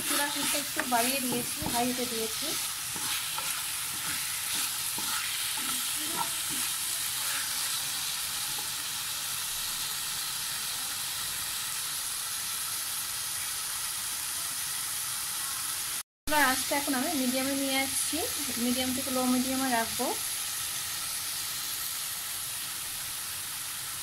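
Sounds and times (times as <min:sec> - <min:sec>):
wooden spatula scraping: 0:00.0 - 0:07.8
food sizzling in a frying pan: 0:00.0 - 0:24.0.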